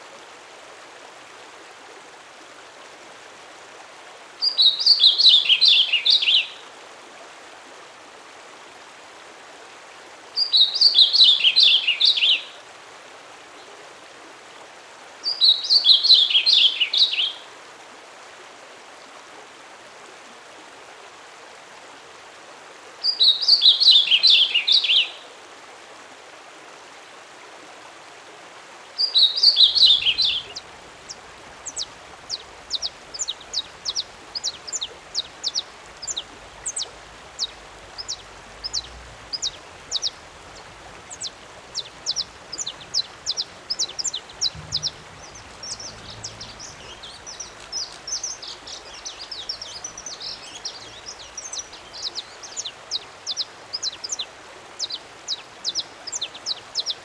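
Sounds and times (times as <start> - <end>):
songbirds singing: 4.4 - 6.6, 10.4 - 12.5, 15.3 - 17.4, 29.0 - 57.0
bird twittering: 29.1 - 57.0.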